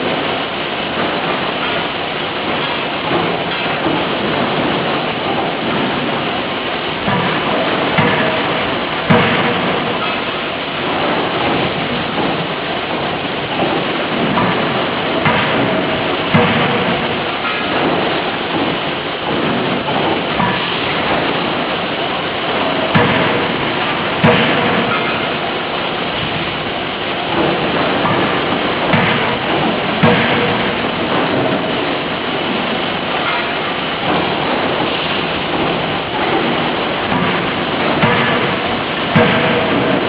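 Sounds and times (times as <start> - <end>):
forging hammer blows: 0.0 - 40.0
loud forge-shop noise: 0.0 - 40.0.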